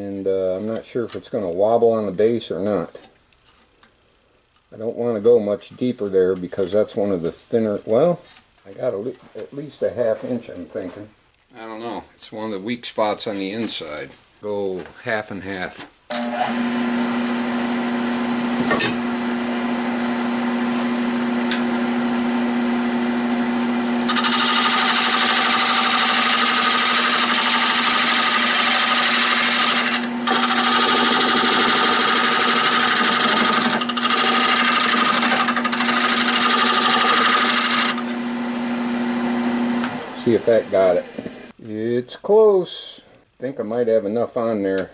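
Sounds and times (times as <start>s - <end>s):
wood lathe humming: 16.1s - 41.5s
lathe tool scraping wood: 23.9s - 41.5s.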